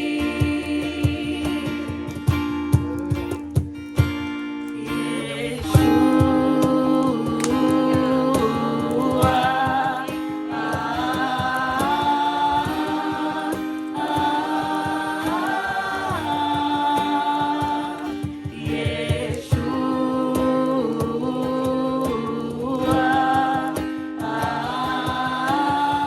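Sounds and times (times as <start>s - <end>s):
group singing worship song: 0.0s - 3.6s, 4.6s - 26.0s
strummed acoustic guitar: 0.0s - 26.0s.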